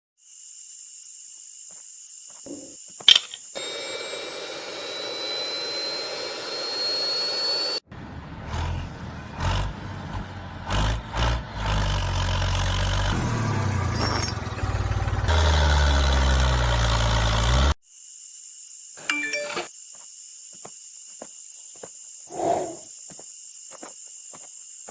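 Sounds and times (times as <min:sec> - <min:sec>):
motor whining and running: 0:03.6 - 0:07.8.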